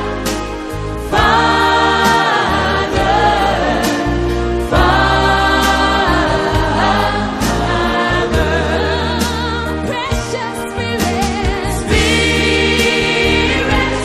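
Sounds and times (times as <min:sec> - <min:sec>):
steady bass notes: 0:00.0 - 0:14.0
voices singing held notes: 0:01.0 - 0:14.0.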